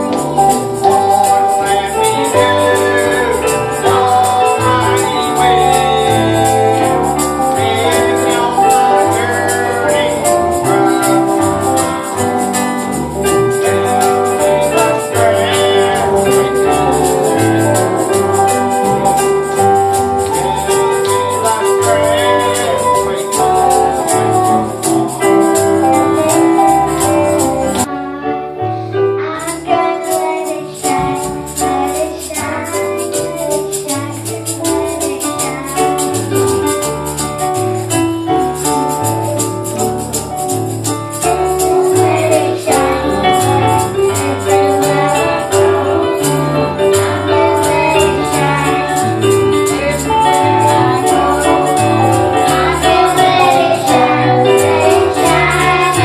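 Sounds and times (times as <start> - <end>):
tambourine shaking: 0.0 - 27.9, 29.4 - 56.0
bass notes: 0.0 - 28.0, 29.0 - 56.0
voices singing: 0.0 - 28.1, 41.2 - 56.0
keyboard: 0.0 - 56.0.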